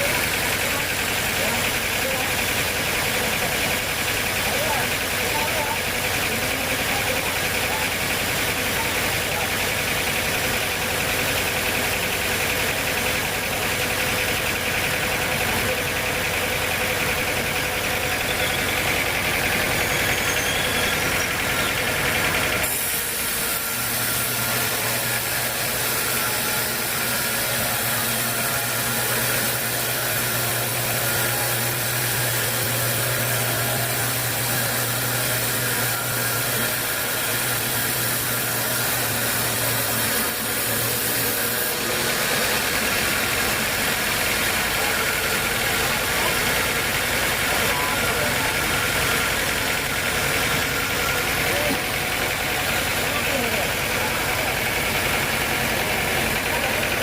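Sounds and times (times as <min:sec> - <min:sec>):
sawmill machinery droning: 0:00.0 - 0:57.0.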